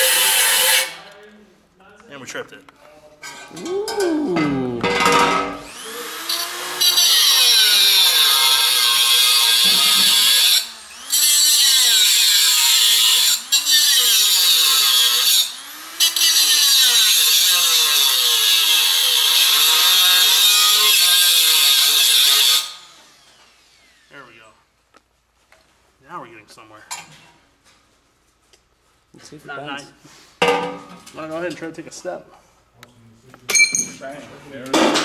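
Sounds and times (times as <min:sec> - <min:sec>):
power tool cutting metal: 0:00.0 - 0:01.0, 0:03.9 - 0:24.1.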